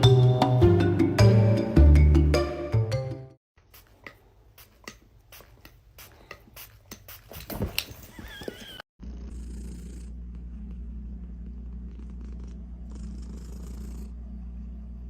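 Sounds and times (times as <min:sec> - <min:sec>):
cat purring: 0:08.1 - 0:15.0.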